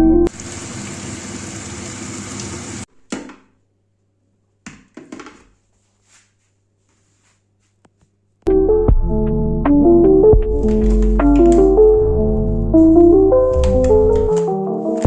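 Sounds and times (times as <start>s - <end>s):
music: 0.0s - 0.3s, 8.5s - 15.0s.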